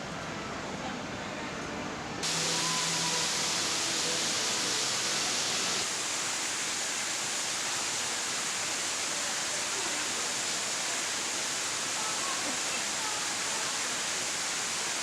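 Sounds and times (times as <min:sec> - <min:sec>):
waterfall rushing: 0:02.2 - 0:15.0.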